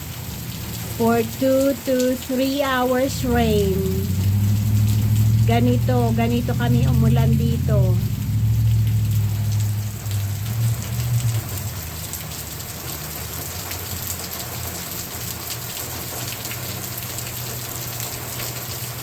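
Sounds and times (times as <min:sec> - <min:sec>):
heavy rain falling: 0:00.0 - 0:19.0
low hum: 0:01.0 - 0:11.6.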